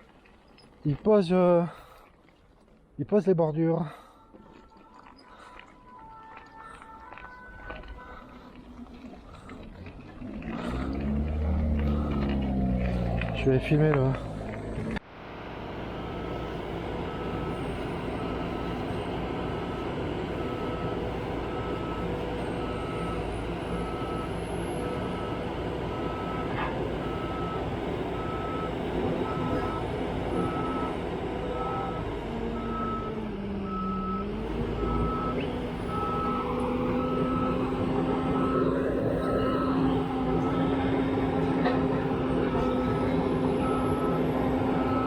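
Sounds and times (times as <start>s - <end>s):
diesel engine running: 6.6s - 45.0s
reversing alarm beeping: 10.7s - 13.2s, 17.0s - 41.4s, 42.2s - 45.0s.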